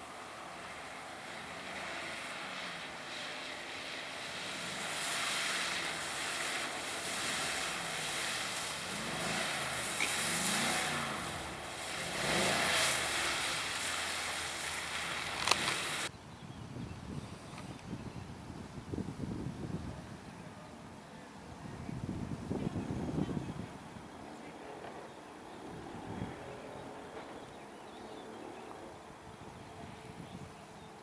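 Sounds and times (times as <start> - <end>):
car engine revving: 0.0 - 16.1.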